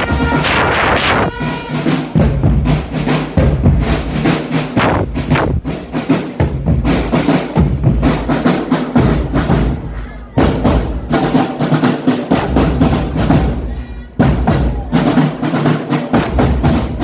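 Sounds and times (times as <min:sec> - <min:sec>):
snare drum strokes: 0:00.0 - 0:09.8
bass drum hits: 0:04.8 - 0:05.8.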